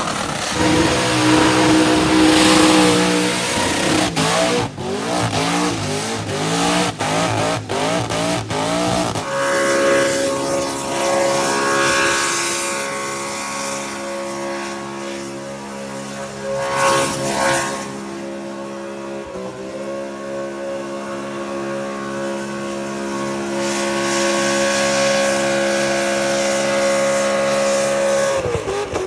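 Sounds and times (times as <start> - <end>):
engine revving: 0.0 - 15.2.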